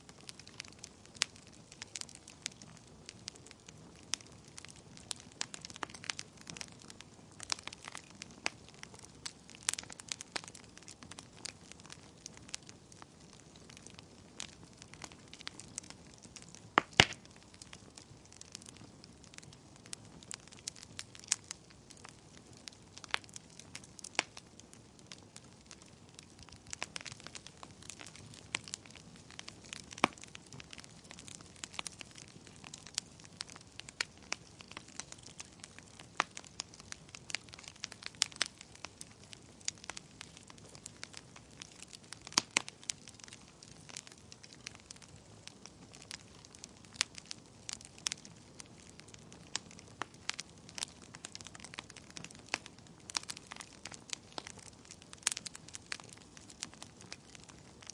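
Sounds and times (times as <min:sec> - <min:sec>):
faint steady hiss: 0:00.0 - 0:57.9
wood fire crackling: 0:00.0 - 0:57.9.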